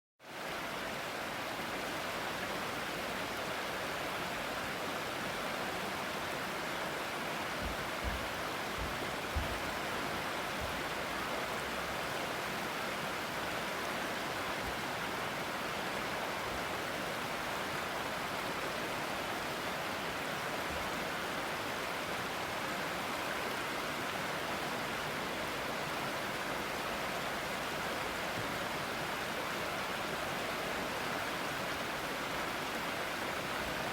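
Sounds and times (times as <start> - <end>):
low thumps: 7.6 - 9.7.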